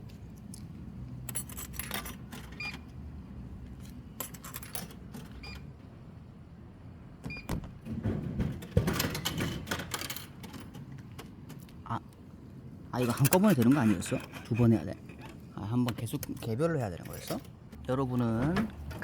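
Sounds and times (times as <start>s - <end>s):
coins clinking into vending machine: 1.2s - 2.8s, 4.1s - 5.6s, 8.9s - 11.6s, 13.0s - 19.0s.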